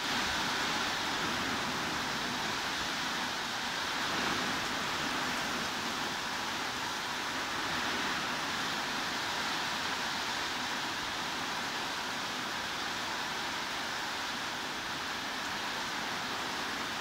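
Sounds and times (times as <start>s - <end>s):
heavy rain hiss: 0.0s - 17.0s.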